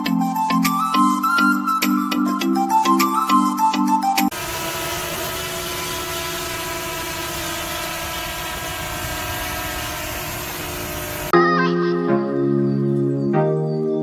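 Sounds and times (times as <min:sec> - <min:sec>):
music: 0:00.0 - 0:04.3, 0:11.3 - 0:14.0
drone propellers humming: 0:04.3 - 0:11.4.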